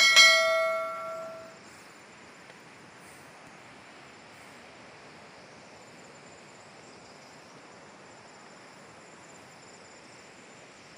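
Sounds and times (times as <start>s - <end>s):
high insect trill: 0.0s - 3.4s
steady hiss: 0.0s - 10.9s.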